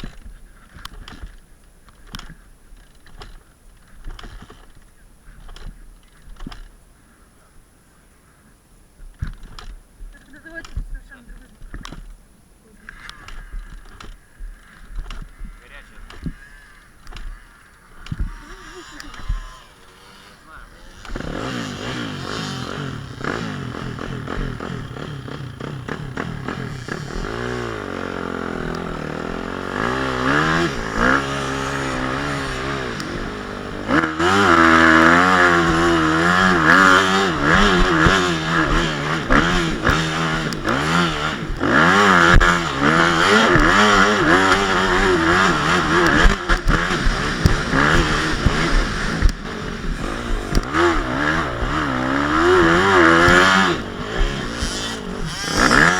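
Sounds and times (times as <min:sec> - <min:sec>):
motocross engine revving: 0:12.8 - 0:55.9.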